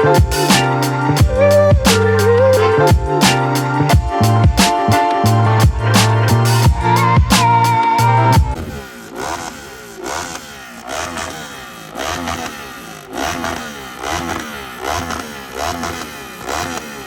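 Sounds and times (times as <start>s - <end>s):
music: 0.0s - 8.6s
motorcycle engine revving: 0.0s - 17.0s.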